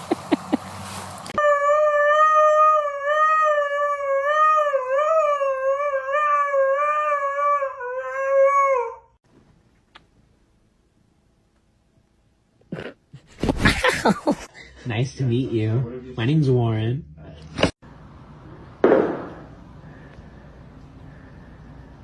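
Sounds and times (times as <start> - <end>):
dog howling: 1.4 - 9.1.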